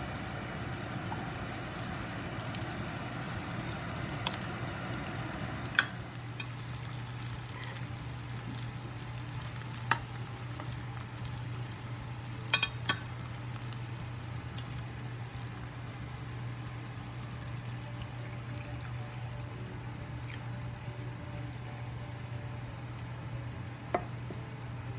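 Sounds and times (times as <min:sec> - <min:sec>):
food sizzling in a pan: 0:00.0 - 0:21.9
utensil clinking against pan: 0:12.5 - 0:13.1.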